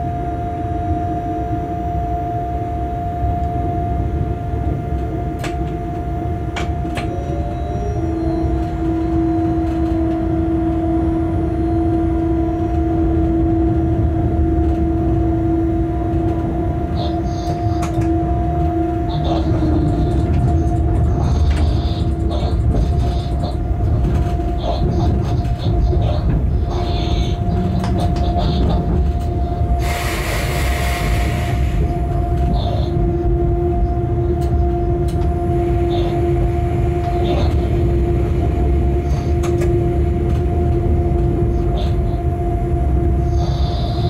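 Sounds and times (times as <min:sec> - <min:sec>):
wheels rumbling on rail: 0:00.0 - 0:44.0
two-note hum: 0:04.9 - 0:25.0.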